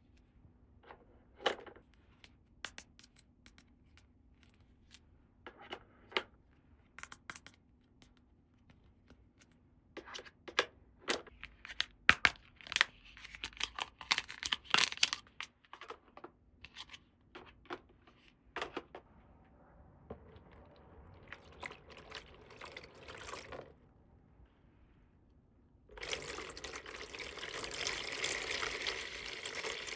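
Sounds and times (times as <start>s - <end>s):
packaging tearing and crinkling: 12.6s - 15.2s.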